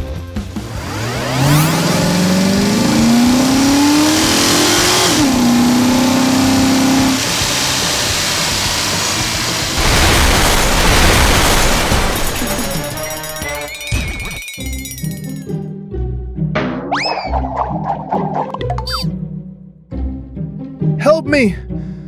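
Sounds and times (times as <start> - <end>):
vehicle engine revving: 0.3 - 13.0
loud rushing noise: 9.8 - 13.1.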